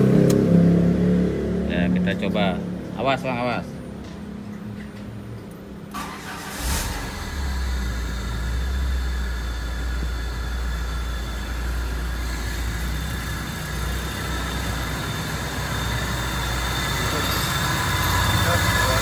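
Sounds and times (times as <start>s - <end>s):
car engine starting: 0.0s - 2.8s, 5.8s - 19.0s
car engine idling: 5.9s - 19.0s.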